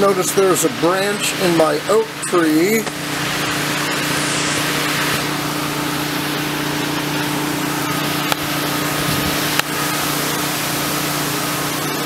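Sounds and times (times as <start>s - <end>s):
wind and heavy rain rushing: 3.0s - 12.0s.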